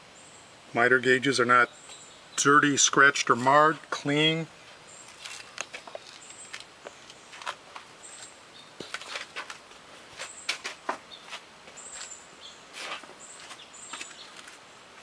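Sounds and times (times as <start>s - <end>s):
faint high bird chirps: 13.2s - 14.4s.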